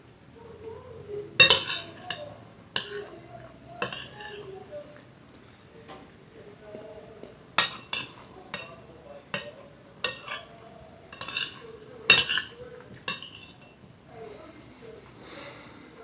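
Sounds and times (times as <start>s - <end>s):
cutlery clinking on a plate: 1.4s - 5.0s, 6.7s - 13.8s.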